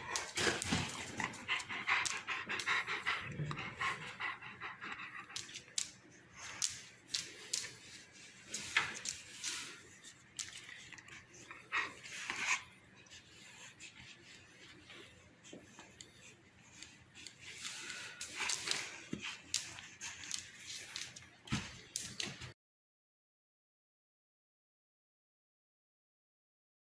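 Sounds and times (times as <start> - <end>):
dog panting: 0.0 - 9.7, 11.0 - 15.1.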